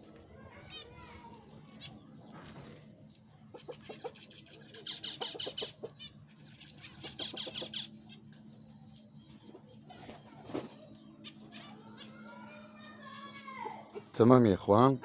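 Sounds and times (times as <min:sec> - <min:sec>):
hen clucks: 0:03.5 - 0:08.2
poultry calling rapid notes: 0:03.5 - 0:08.4.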